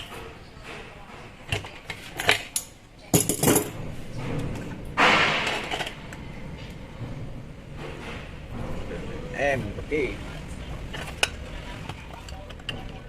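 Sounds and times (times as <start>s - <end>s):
metal parts clinking and knocking: 1.5s - 3.8s
metal scrape: 3.7s - 9.6s.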